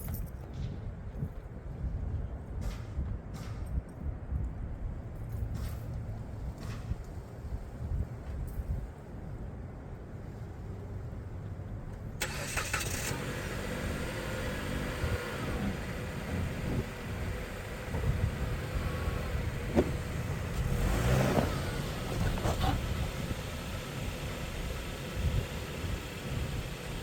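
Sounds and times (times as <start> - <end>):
car engine revving: 12.2 - 24.1.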